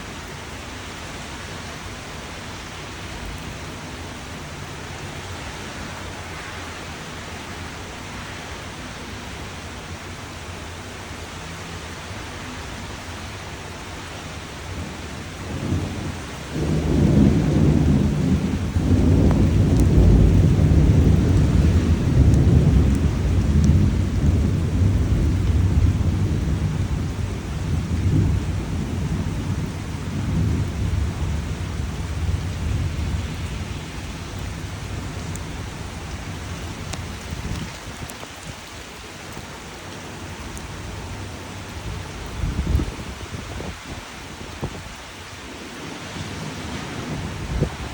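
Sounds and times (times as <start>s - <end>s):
rain hissing: 0.0s - 47.9s
thunder rumbling: 14.7s - 38.8s, 40.8s - 45.7s, 46.3s - 47.9s.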